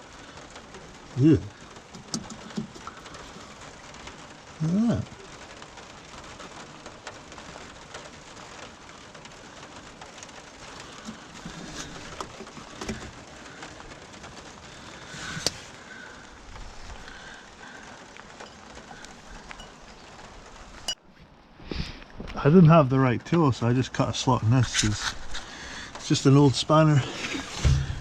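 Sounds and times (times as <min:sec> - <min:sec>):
steady rain-like hiss: 0:00.0 - 0:28.0
light clicks and knocks: 0:01.8 - 0:04.2.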